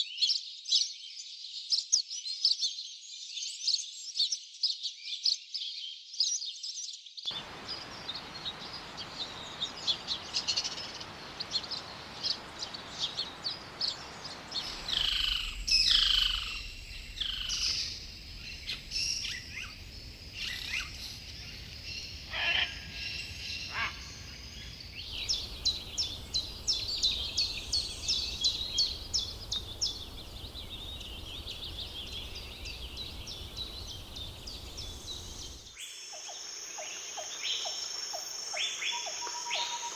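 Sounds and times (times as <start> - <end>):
high bird chirps: 7.3 - 19.8, 25.1 - 36.3
insects and forest noise: 7.3 - 39.9
sharp repeated bird chirps: 25.1 - 36.3.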